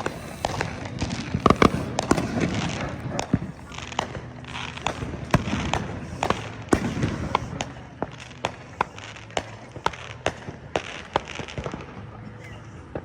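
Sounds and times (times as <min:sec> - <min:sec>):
hissing crackle: 0:01.4 - 0:02.0
distant fireworks bangs: 0:01.4 - 0:02.5.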